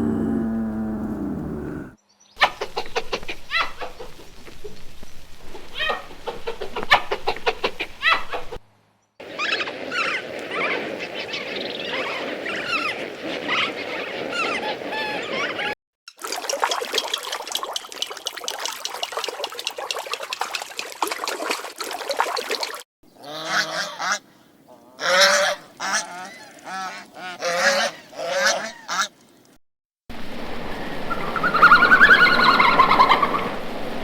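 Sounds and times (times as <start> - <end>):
chickens clucking: 2.4 - 4.6, 5.5 - 8.6, 31.3 - 33.6.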